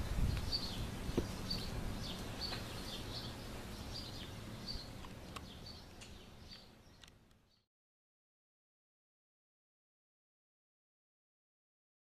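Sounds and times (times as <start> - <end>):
bird chirping: 0.0 - 7.7
outdoor background noise: 0.0 - 7.7.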